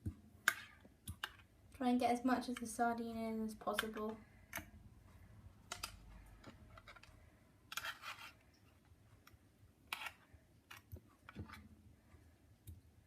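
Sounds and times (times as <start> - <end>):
fork scraping a tin: 7.7 - 8.4, 9.9 - 10.2.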